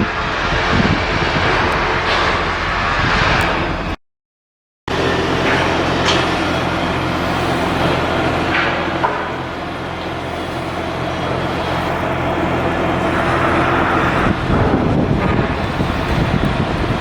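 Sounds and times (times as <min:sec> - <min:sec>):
broad rushing noise: 0:00.0 - 0:04.0, 0:04.9 - 0:17.0
ship diesel engine humming: 0:04.9 - 0:17.0.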